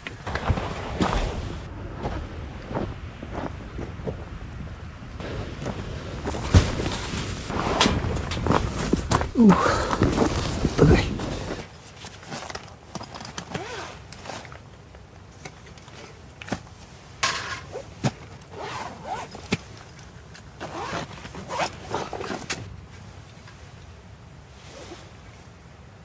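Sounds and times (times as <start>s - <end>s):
handling scrapes and rustles: 6.3s - 23.8s.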